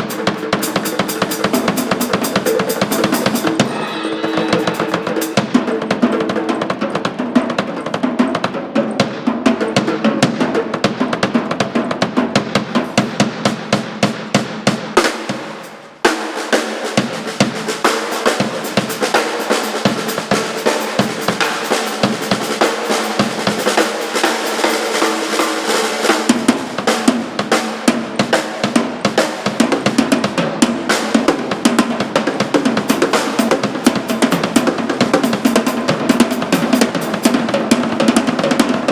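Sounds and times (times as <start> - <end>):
rock band playing: 0.0 - 6.7
snare and bass drum hits: 0.0 - 6.8.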